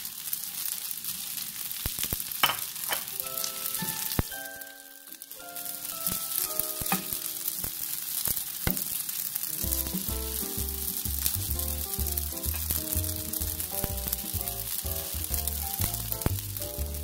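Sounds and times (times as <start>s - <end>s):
dry sizzle in frying pan: 0.0s - 17.0s
background music: 3.2s - 7.6s, 9.5s - 17.0s.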